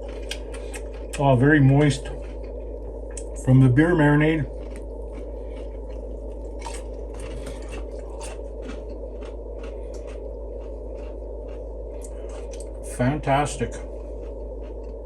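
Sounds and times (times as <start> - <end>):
low background hum: 0.0 - 15.0
person chewing crunchy food: 0.0 - 15.0.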